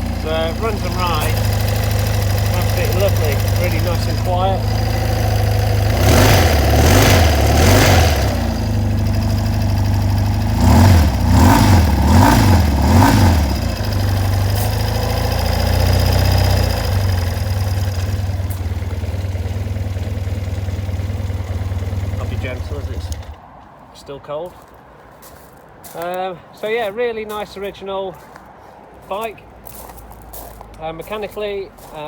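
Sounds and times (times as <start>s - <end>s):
motorcycle engine idling: 0.0s - 23.4s
motorcycle engine throttle blips: 0.0s - 23.4s.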